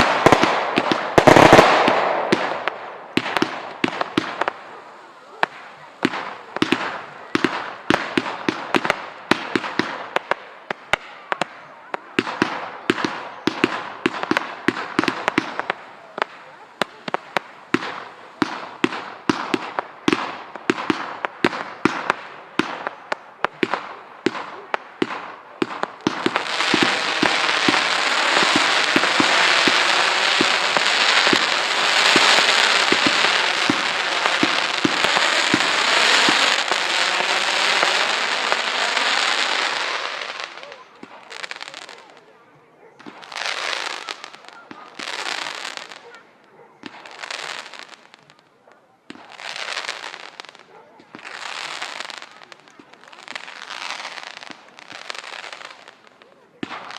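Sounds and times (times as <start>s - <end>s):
fireworks bangs: 0.0s - 56.9s
fireworks crackle: 0.0s - 56.9s.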